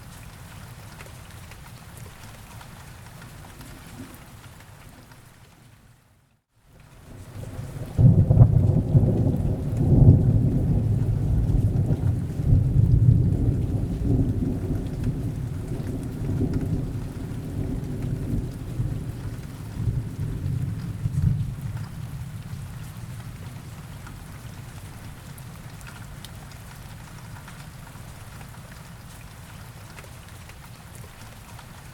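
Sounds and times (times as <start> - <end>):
steady rain: 0.0 - 31.9
thunder rumbling: 7.2 - 23.7.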